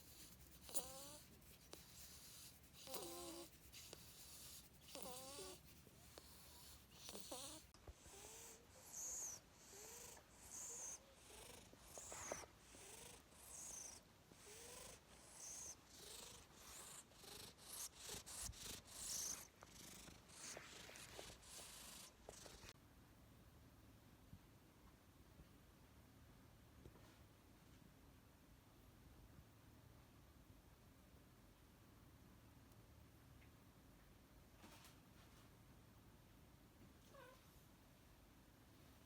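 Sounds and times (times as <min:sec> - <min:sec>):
cat purring: 0:00.0 - 0:22.8.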